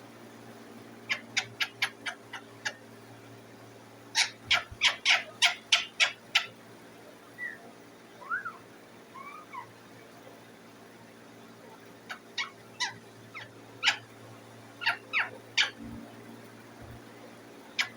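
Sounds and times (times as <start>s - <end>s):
faint steady hum: 0.0s - 17.9s
parakeet whistling and chirping: 1.1s - 2.8s, 4.2s - 6.5s, 7.4s - 7.6s, 8.2s - 9.7s, 12.1s - 14.0s, 14.8s - 15.8s.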